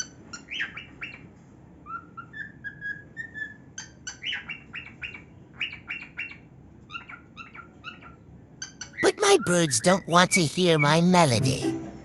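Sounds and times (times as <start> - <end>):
cockatiel whistling and chirping: 1.8 - 6.4.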